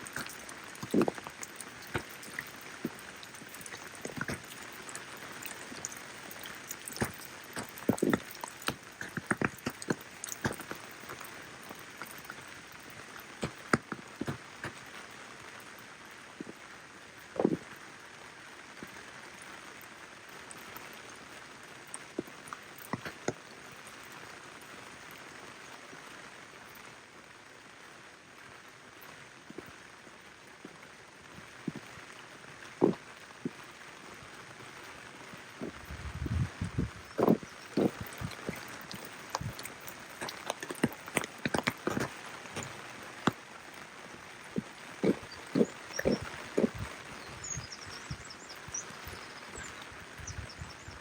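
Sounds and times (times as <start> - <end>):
footsteps on wet ground: 0.0 - 14.8, 35.6 - 51.0
sharp raindrops striking close: 0.0 - 25.6, 28.7 - 51.0
steady rain falling: 0.0 - 51.0.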